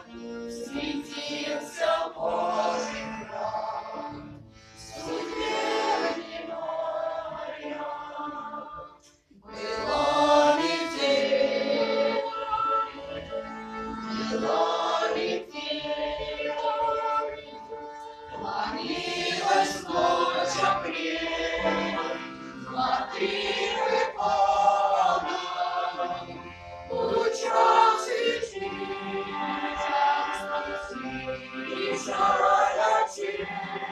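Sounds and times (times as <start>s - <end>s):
choir singing: 0.0s - 33.9s.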